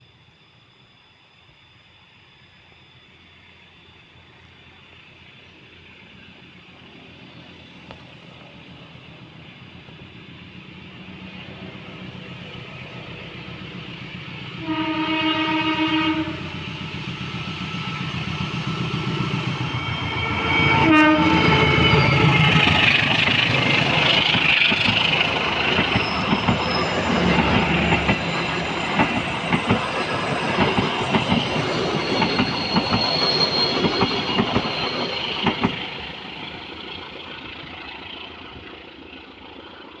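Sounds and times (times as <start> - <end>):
diesel locomotive engine: 0.0 - 40.0
train horn blasts: 14.6 - 16.6, 20.3 - 21.8
train wheels clacking over rail joints: 22.6 - 36.0.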